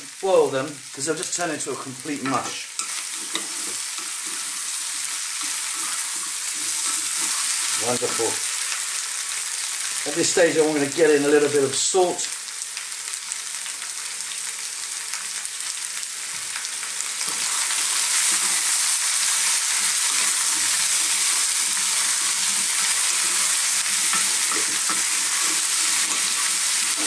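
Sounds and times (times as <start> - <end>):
vegetables sizzling in a pan: 0.0 - 27.0
wooden spoon stirring: 3.0 - 8.4, 22.1 - 27.0.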